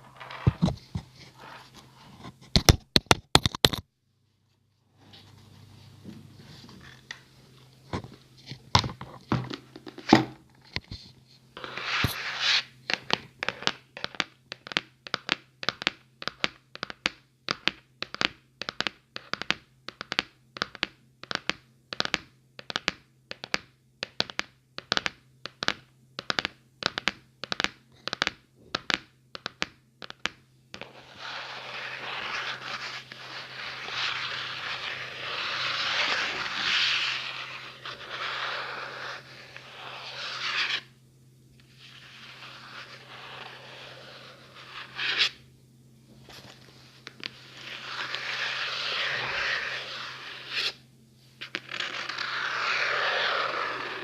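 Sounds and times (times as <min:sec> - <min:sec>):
continuous scratching: 0:30.1 - 0:40.9, 0:41.6 - 0:45.4, 0:46.3 - 0:50.8, 0:51.4 - 0:54.0.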